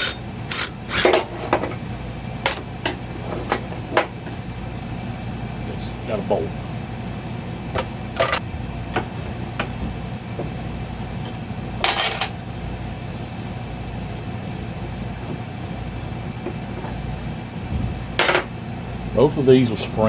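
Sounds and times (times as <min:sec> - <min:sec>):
metal tools clinking: 0:00.0 - 0:03.6, 0:11.8 - 0:12.3.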